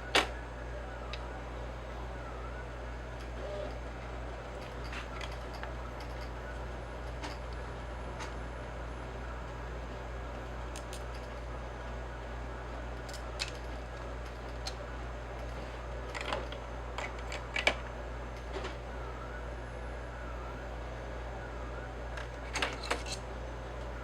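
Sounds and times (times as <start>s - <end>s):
tools clicking on a workbench: 13.0s - 14.8s.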